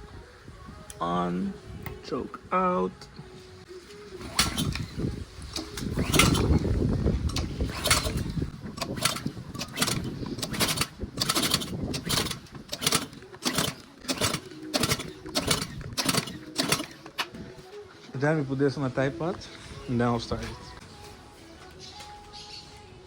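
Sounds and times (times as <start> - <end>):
small petrol engine running roughly: 4.2 - 17.3
sharp mechanical bursts: 4.2 - 17.4.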